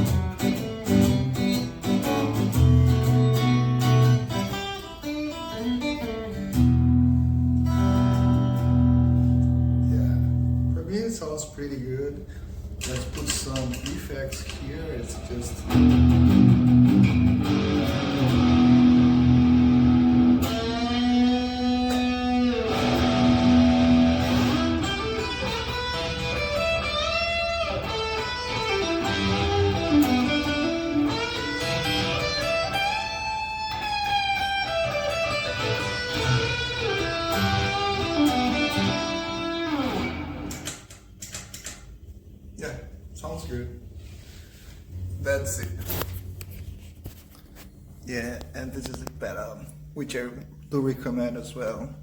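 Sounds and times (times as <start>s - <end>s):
electric guitar with effects: 0.0s - 10.8s, 15.2s - 41.2s.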